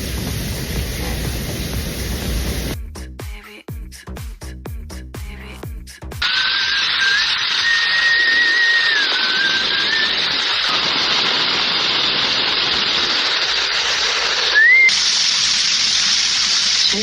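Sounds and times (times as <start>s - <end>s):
rain storm hiss: 0.0s - 2.8s, 6.2s - 17.0s
whistling wind: 6.2s - 14.9s.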